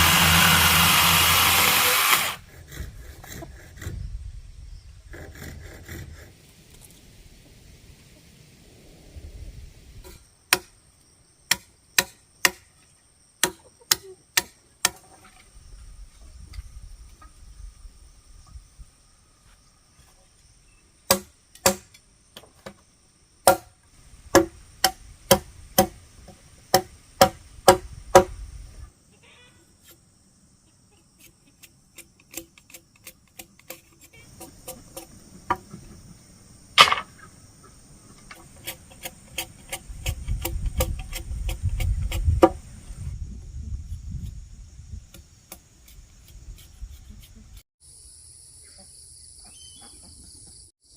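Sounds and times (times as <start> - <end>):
high insect drone: 9.0 - 50.9.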